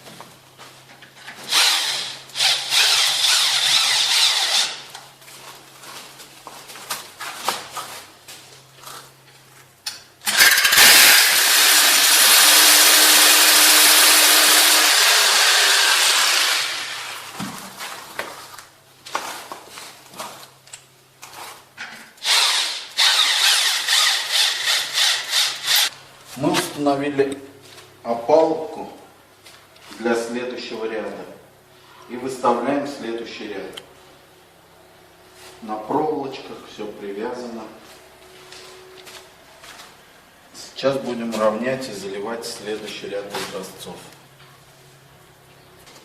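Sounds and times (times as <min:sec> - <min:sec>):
electric power tool running: 0:01.5 - 0:04.8, 0:10.2 - 0:17.4, 0:22.2 - 0:25.9.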